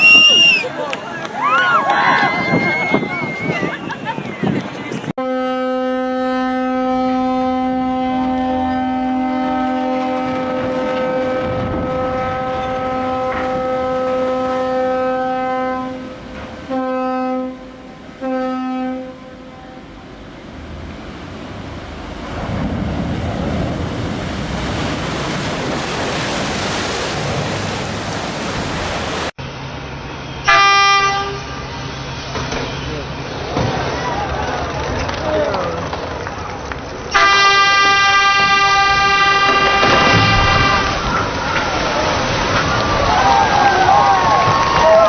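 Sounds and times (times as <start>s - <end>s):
ship's horn blasts: 5.2s - 20.8s, 30.2s - 33.2s, 37.1s - 41.3s
rushing noise: 19.2s - 30.6s.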